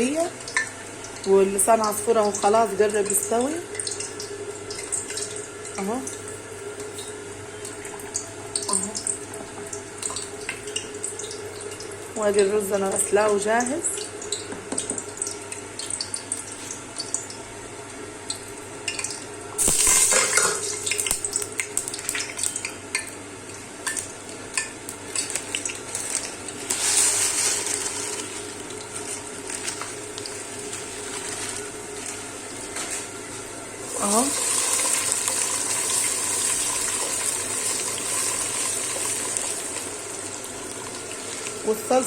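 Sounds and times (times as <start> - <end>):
food sizzling: 0.0 - 42.0.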